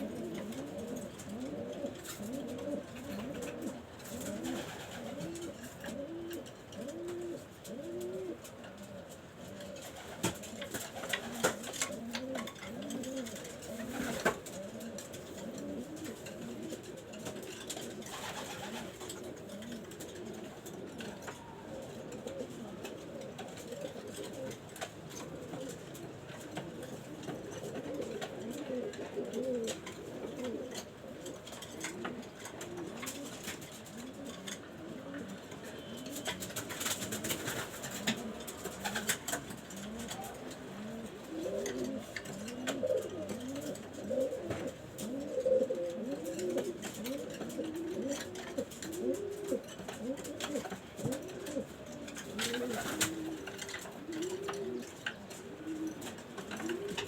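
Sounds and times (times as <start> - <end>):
pigeons cooing: 0.0 - 57.0
sharp clicks and rustles: 0.1 - 57.0.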